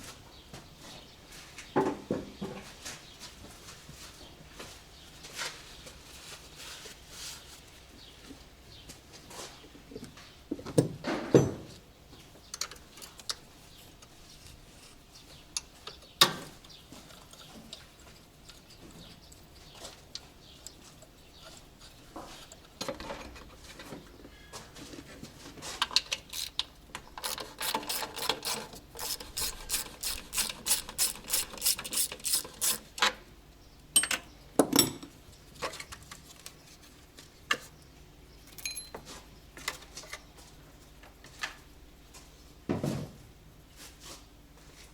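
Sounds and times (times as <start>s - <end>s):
hand tools clicking on metal: 25.8s - 33.0s
quick even ratchet clicks: 26.2s - 32.9s.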